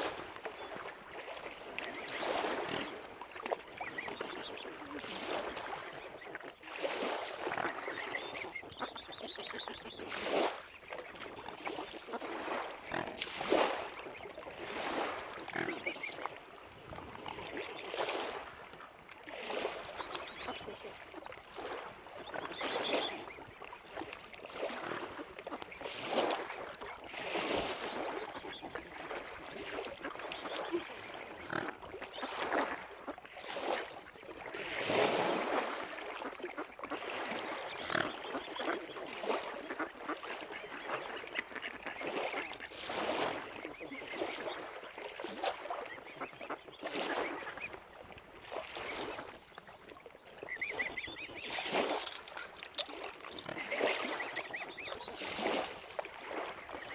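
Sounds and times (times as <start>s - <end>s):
waterfowl honking and quacking: 7.0s - 16.4s, 19.5s - 34.0s, 35.5s - 48.0s, 50.4s - 56.9s.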